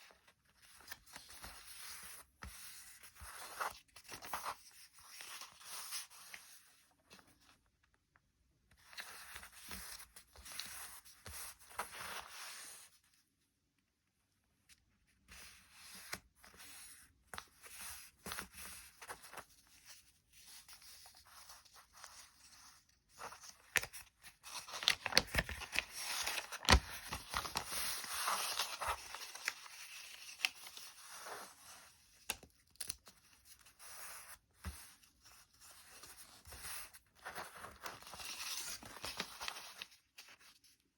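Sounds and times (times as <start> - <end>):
paper rustling and crinkling: 15.4 - 40.9
paper folds tapping and snapping: 23.4 - 30.8.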